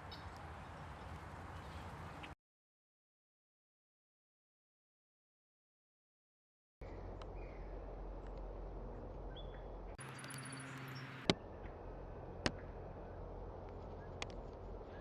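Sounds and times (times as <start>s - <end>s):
low hum: 6.8s - 15.0s
bird chirps: 9.3s - 11.5s.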